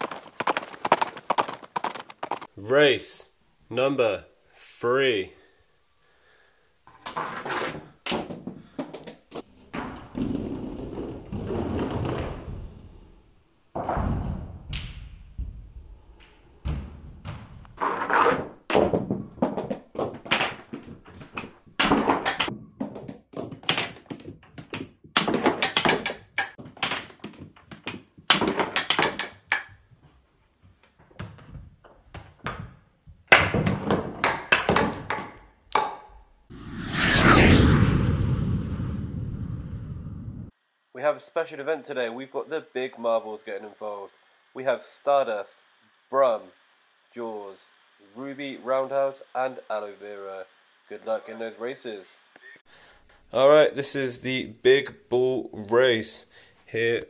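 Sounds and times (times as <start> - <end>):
marbles thunking and tapping: 18.7 - 29.8.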